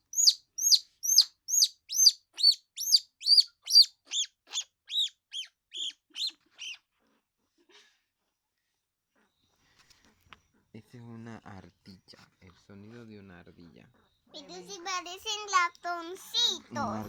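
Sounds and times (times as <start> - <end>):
baby squirrel high-pitched chirps: 0.0 - 6.8.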